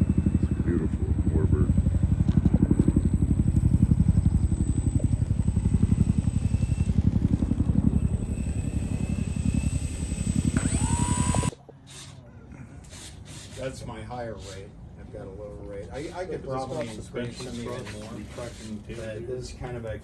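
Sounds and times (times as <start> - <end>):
rising whine: 0.0 - 11.7
model plane motor drone: 0.0 - 12.2.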